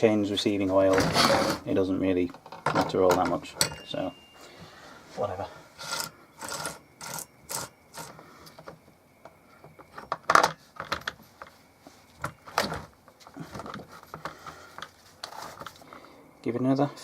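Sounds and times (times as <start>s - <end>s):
hand tools clicking and knocking: 2.3s - 4.1s, 5.8s - 11.6s.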